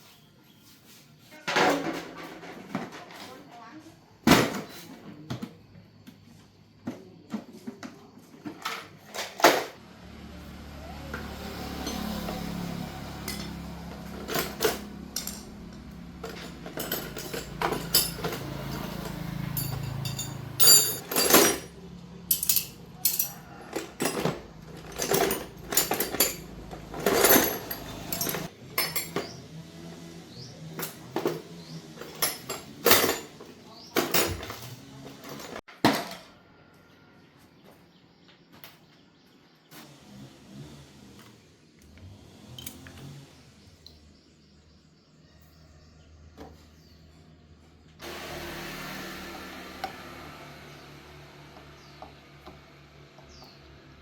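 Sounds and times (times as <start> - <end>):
metallic clinks of hand tools: 16.2 - 21.7, 22.3 - 29.4.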